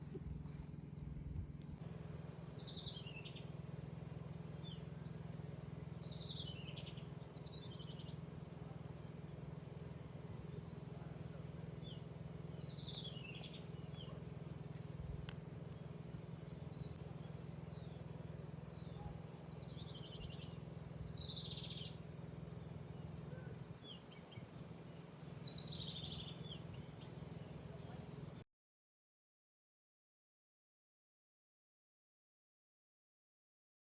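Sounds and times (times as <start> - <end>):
steady low hum: 0.0 - 28.4
bird singing falling chirps: 25.2 - 27.0.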